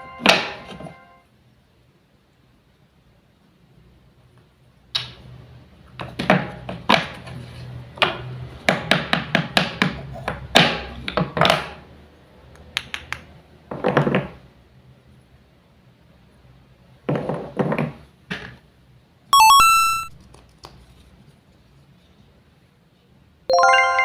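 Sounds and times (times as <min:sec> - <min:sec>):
wooden toys knocking and clacking: 0:08.0 - 0:11.8.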